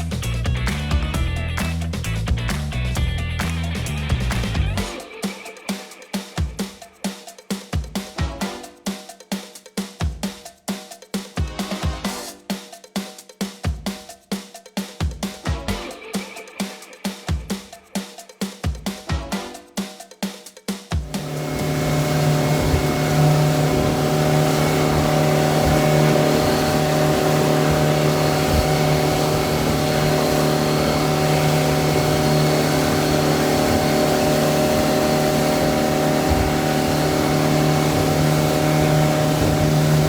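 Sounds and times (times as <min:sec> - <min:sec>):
boat engine running: 0:00.0 - 0:04.9, 0:21.0 - 0:40.0
wind and water rushing: 0:21.1 - 0:40.0.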